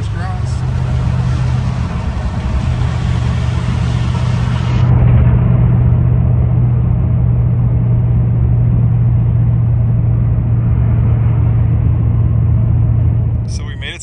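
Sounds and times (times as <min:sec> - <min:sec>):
car engine cruising: 0:00.0 - 0:14.0.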